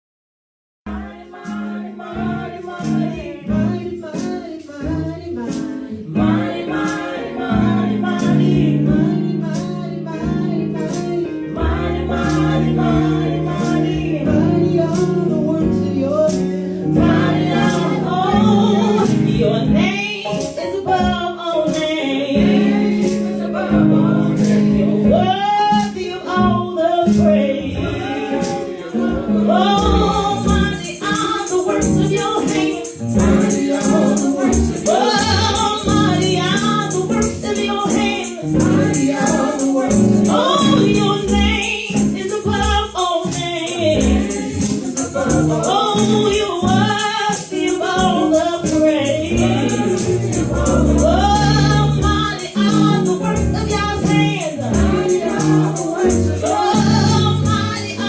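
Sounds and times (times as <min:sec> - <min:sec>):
group singing gospel song: 0:00.9 - 0:58.0
tambourine shaking: 0:01.2 - 0:02.0, 0:02.6 - 0:06.0, 0:06.7 - 0:07.4, 0:10.8 - 0:14.2, 0:16.3 - 0:19.4, 0:22.9 - 0:23.6, 0:24.2 - 0:24.8, 0:28.4 - 0:28.9, 0:29.6 - 0:58.0
instrumental accompaniment: 0:28.0 - 0:58.0.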